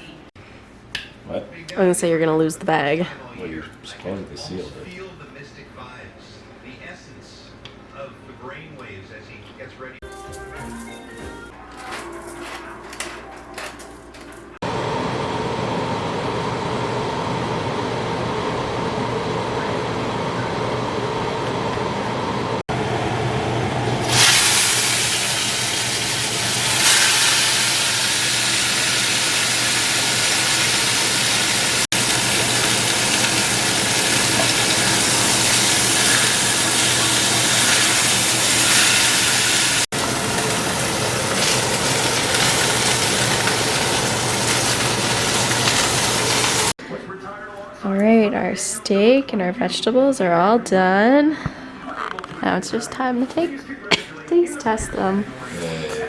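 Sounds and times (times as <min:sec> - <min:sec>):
steaks sizzling in a pan: 0:24.1 - 0:46.7.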